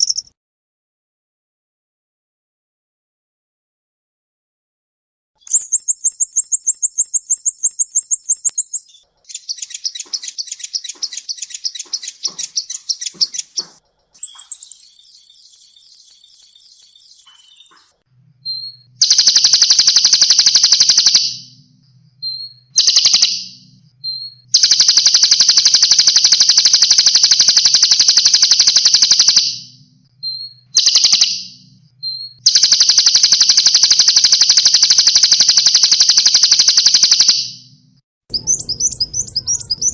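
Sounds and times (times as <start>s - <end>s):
bird chips: 0.0s - 0.3s, 5.5s - 18.0s, 38.3s - 39.9s
bird rapid high trills: 0.0s - 0.3s, 5.5s - 18.0s, 18.6s - 21.4s, 38.3s - 39.9s
bird harsh rattling phrases: 5.5s - 18.0s.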